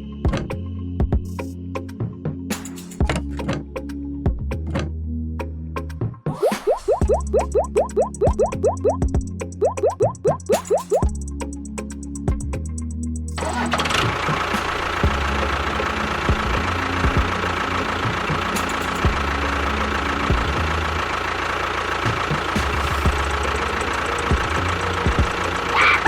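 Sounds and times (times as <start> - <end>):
model tractor motor chugging: 13.3 - 26.0.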